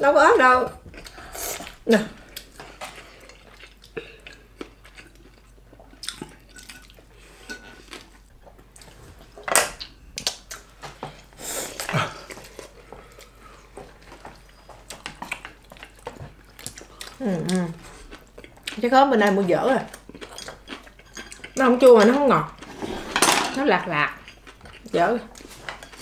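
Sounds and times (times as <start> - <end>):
people chewing food: 0.7 - 23.1, 23.7 - 26.0.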